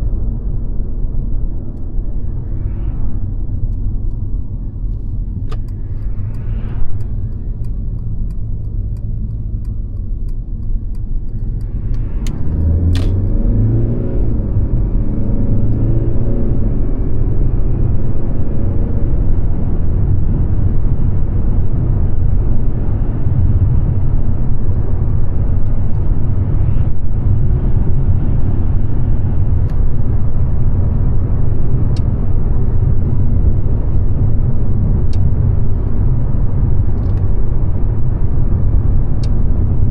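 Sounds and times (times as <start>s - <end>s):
car engine driving: 0.0s - 39.9s
road noise: 0.0s - 39.9s
light ticking: 5.4s - 13.2s.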